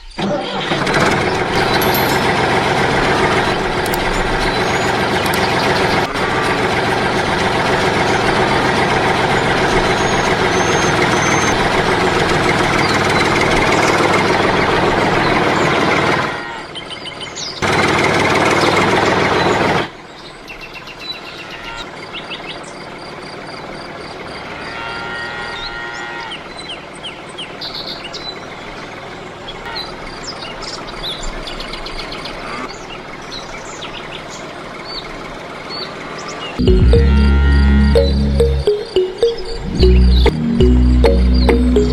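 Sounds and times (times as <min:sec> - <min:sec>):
motor running loudly: 0:01.2 - 0:15.2
birds chirping: 0:03.5 - 0:11.8.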